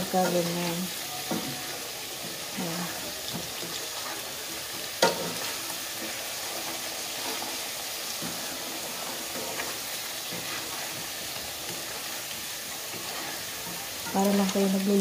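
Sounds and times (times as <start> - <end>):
sweet potato sizzling in oil: 0.0 - 15.0
wooden spatula scraping and knocking pan: 0.0 - 15.0.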